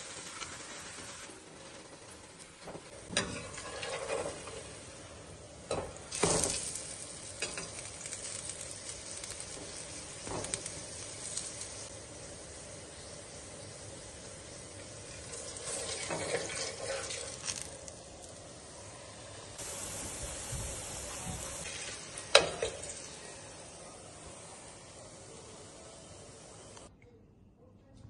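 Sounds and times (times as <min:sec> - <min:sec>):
flatbread sizzling on griddle: 0:00.0 - 0:26.9
knocks and scrapes on griddle: 0:02.6 - 0:04.7, 0:05.7 - 0:06.8, 0:09.5 - 0:10.8, 0:15.5 - 0:17.7.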